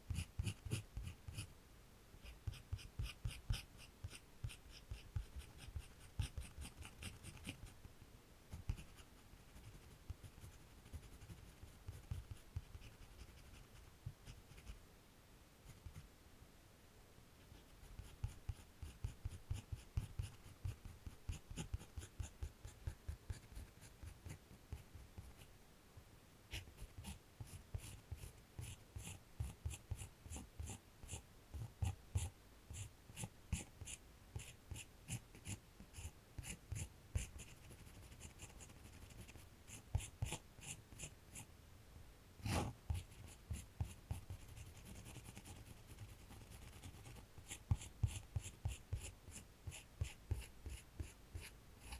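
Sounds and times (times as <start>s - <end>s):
drawing tool scratching on paper: 0.1s - 1.5s, 2.2s - 7.7s, 17.5s - 25.5s, 26.5s - 41.5s, 42.4s - 51.9s.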